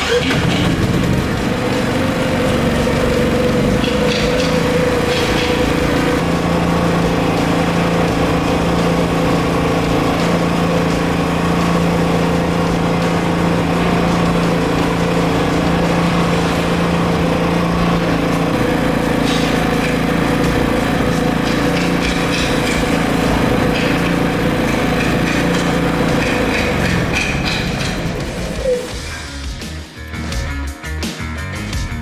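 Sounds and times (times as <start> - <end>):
generator engine running: 0.0 - 29.7.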